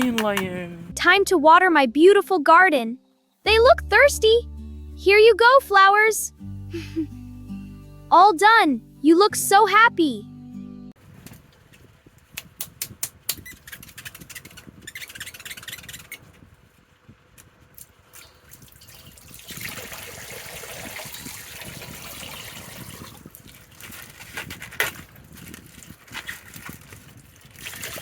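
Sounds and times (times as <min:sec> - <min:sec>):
water trickling and pouring: 0:18.1 - 0:23.8.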